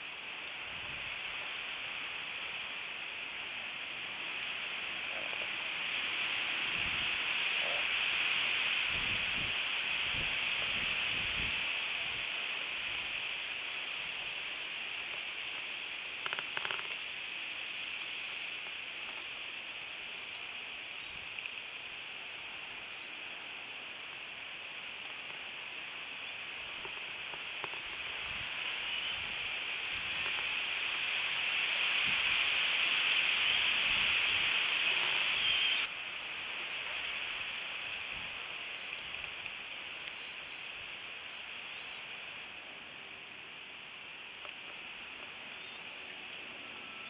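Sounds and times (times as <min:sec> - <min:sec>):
strong wind rushing: 0:08.8 - 0:12.3.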